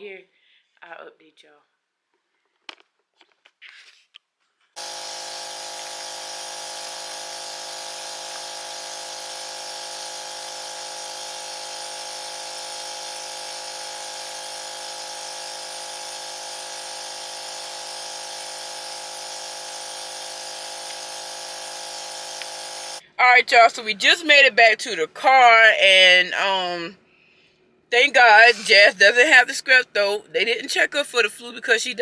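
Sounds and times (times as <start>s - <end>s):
nebulizer compressor buzzing: 4.8s - 23.0s.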